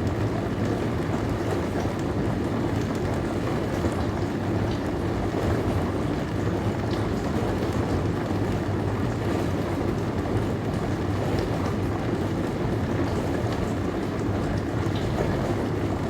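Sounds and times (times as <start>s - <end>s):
dishwasher low hum: 13.8s - 16.0s.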